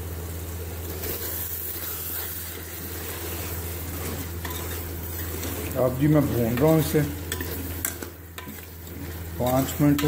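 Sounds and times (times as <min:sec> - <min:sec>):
constant low hum: 0:00.0 - 0:10.0
food sizzling in a metal pot: 0:00.0 - 0:10.0.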